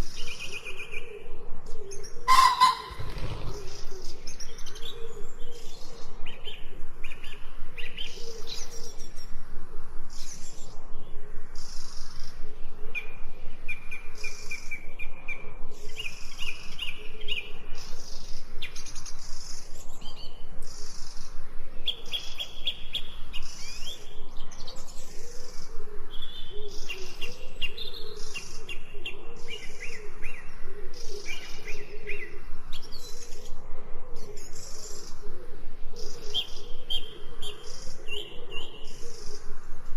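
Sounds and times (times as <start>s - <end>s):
birds chirping and trilling: 0.0s - 9.4s, 10.1s - 33.6s, 34.2s - 39.6s
low warbling bird call: 2.2s - 4.0s.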